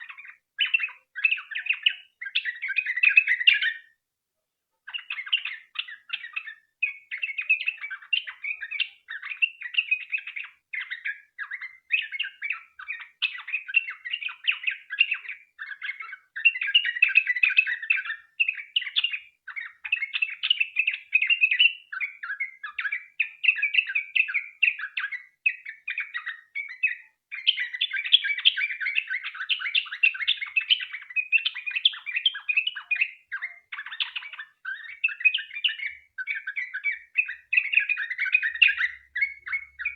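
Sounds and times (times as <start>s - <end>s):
bird chattering song: 0.0s - 4.0s, 4.9s - 39.9s.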